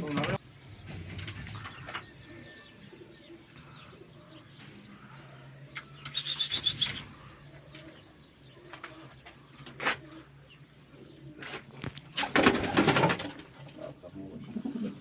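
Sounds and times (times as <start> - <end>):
pigeons cooing: 0.0 - 15.0
rapid high chirping: 5.9 - 7.2.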